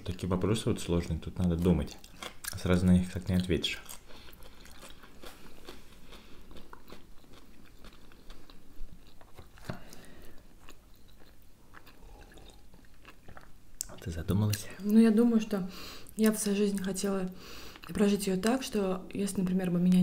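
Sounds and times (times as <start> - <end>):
person chewing: 1.4 - 15.0, 17.6 - 18.0.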